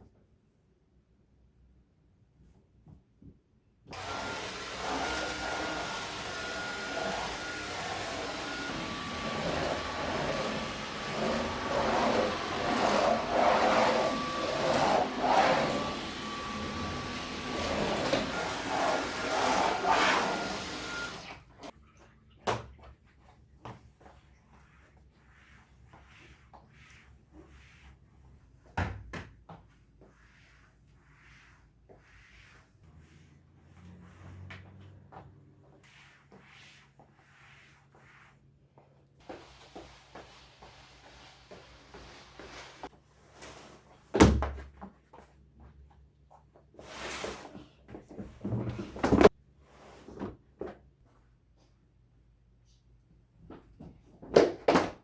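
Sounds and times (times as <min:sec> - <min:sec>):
vacuum cleaner running: 0:03.9 - 0:21.7, 0:39.2 - 0:42.9.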